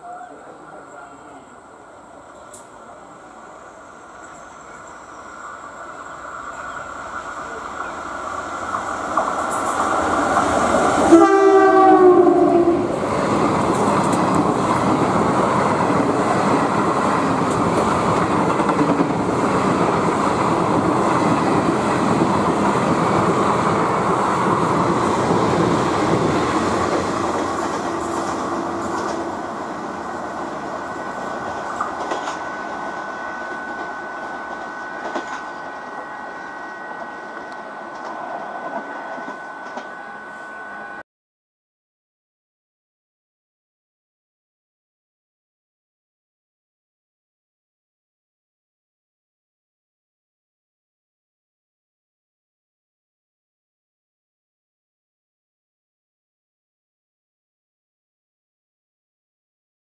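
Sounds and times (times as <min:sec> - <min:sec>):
train wheels clattering on rails: 0:04.2 - 0:11.1, 0:13.2 - 0:36.0, 0:37.0 - 0:40.0
locomotive horn: 0:11.0 - 0:12.9, 0:27.5 - 0:29.6.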